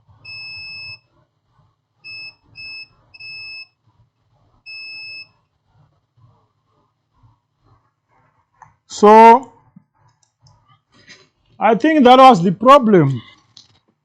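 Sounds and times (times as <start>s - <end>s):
multimeter continuity buzzer beeping: 0.2s - 1.1s, 2.1s - 3.8s, 4.7s - 5.4s.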